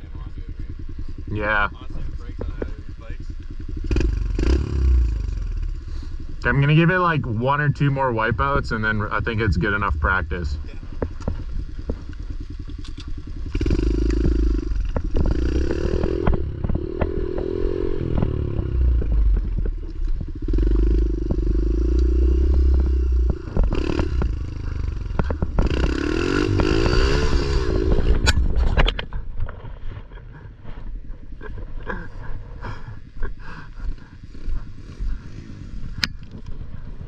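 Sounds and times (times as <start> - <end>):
pit bike engine revving: 0.0 - 29.1.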